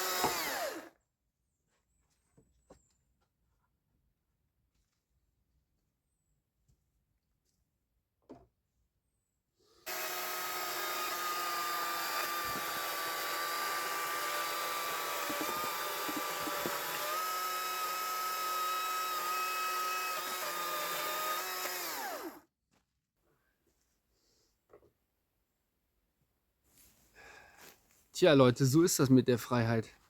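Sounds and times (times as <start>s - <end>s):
electric saw motor running: 0.0s - 0.9s, 9.8s - 22.4s
wood knocks: 15.2s - 17.0s.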